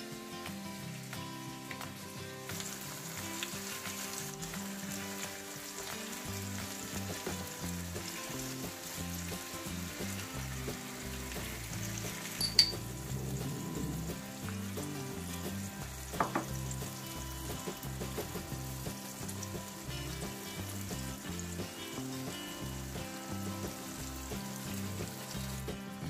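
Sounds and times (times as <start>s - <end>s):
soft background music: 0.0s - 26.0s
vegetables sizzling in oil: 0.0s - 26.0s
sharp clink: 12.4s - 12.8s.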